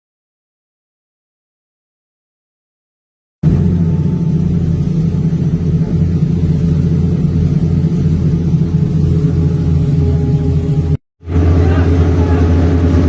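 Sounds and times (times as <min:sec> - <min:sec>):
ship engines droning: 0:03.4 - 0:13.0.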